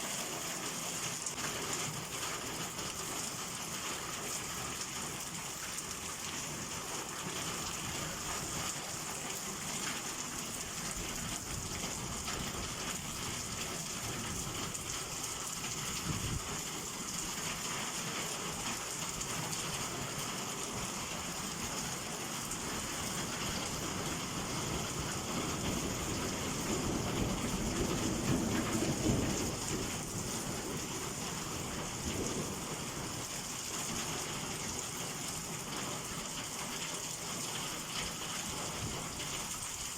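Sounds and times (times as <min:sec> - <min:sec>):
heavy rain downpour: 0:00.0 - 0:39.9
thunder rumbling: 0:25.6 - 0:30.9.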